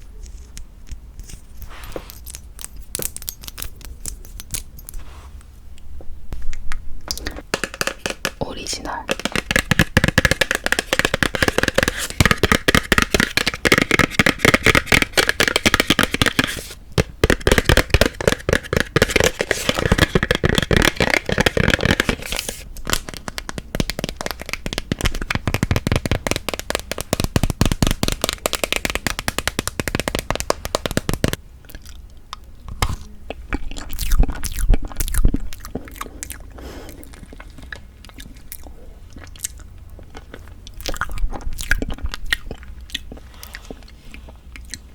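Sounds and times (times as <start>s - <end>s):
close-miked chewing and mouth clicks: 31.6s - 32.5s, 33.2s - 44.9s.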